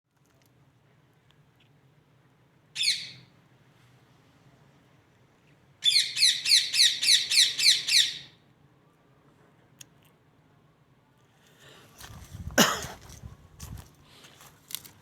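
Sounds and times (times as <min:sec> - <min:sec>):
parrot squawking: 0:02.8 - 0:03.2, 0:05.8 - 0:08.3.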